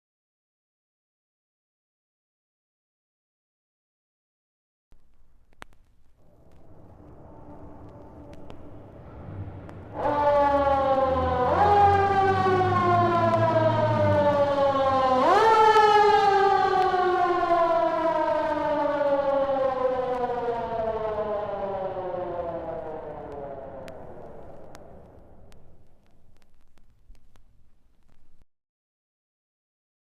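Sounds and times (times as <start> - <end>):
low rumble: 5.0 - 14.9
siren wailing: 6.3 - 25.9.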